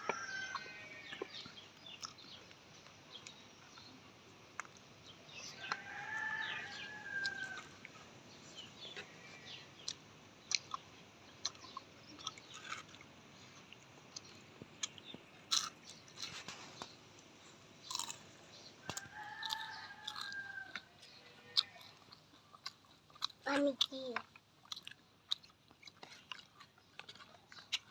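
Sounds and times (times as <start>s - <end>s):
rooster crowing: 0.0s - 1.4s, 5.6s - 7.8s, 18.8s - 21.0s
chewing and crunching food: 0.0s - 27.9s.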